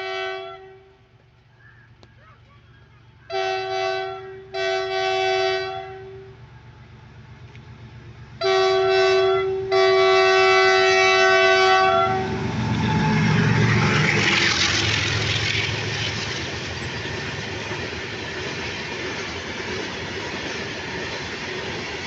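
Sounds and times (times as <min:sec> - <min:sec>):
locomotive horn blasts: 0:00.0 - 0:01.1, 0:03.3 - 0:06.4, 0:08.4 - 0:13.4
train rumble: 0:00.0 - 0:22.0.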